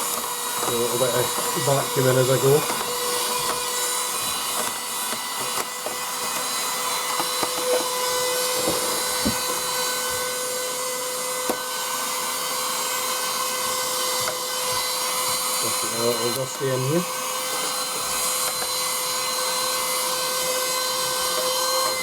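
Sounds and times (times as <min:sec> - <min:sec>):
small vacuum cleaner running: 0:00.0 - 0:22.0
nozzle clicks and knocks: 0:07.1 - 0:10.3.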